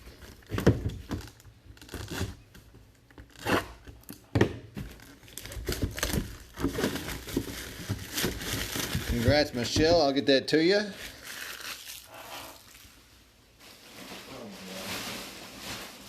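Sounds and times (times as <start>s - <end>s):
packaging crinkling and tearing: 0.1s - 4.2s, 4.9s - 9.8s, 10.9s - 13.0s.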